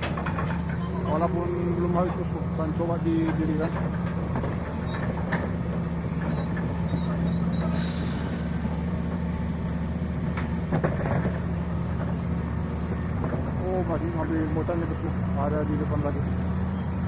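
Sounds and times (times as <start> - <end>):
knocks and clanks: 0.0 - 1.0, 3.1 - 7.9, 10.2 - 12.3
heavy diesel engine running: 0.0 - 17.0.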